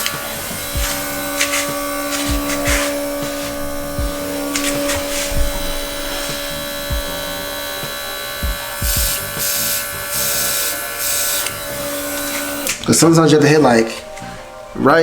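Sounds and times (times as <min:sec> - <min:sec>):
airbrush hissing spray: 0:00.0 - 0:14.4
air compressor buzzing hum: 0:00.0 - 0:14.8.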